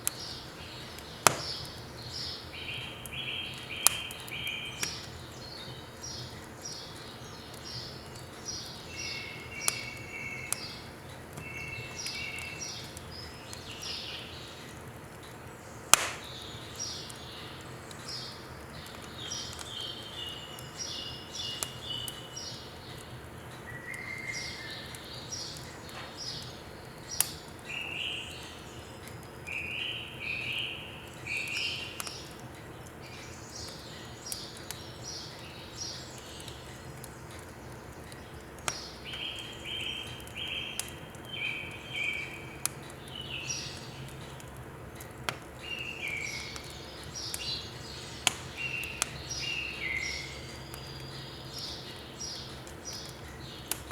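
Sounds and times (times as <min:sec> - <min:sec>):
songbirds chirping: 0:00.0 - 0:53.9
sharp clicks: 0:15.9 - 0:16.4, 0:48.2 - 0:49.2, 0:52.5 - 0:53.9.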